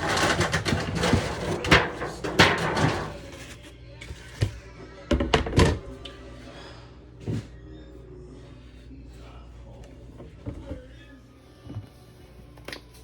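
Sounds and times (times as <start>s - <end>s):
kitchen rustling and clattering: 0.0s - 6.2s, 9.8s - 11.0s
faint music: 0.0s - 13.0s.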